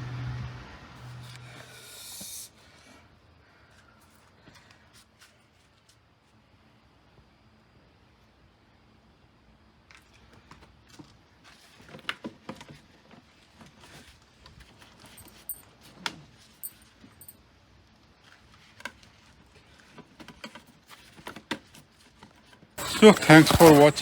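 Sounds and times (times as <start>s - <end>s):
objects clicking and rattling: 22.8s - 24.0s.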